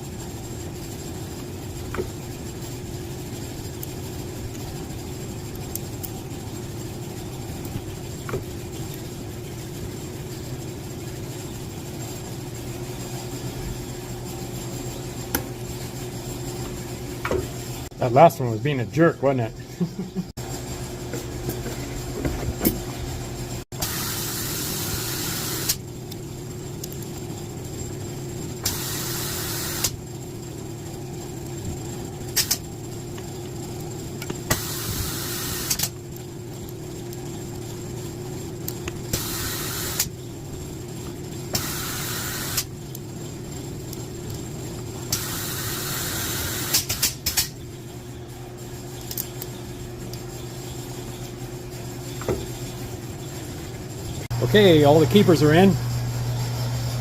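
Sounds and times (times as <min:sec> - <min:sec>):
steady machine hum: 0:00.0 - 0:57.0
pneumatic air hiss bursts: 0:23.8 - 0:25.8, 0:28.6 - 0:30.0, 0:34.5 - 0:35.9, 0:39.1 - 0:40.1, 0:41.5 - 0:42.7, 0:45.1 - 0:47.5.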